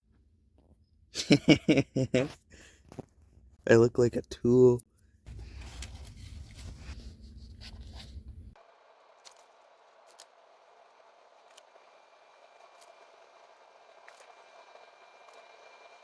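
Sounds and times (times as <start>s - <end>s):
close rustling and scraping: 5.3s - 8.6s.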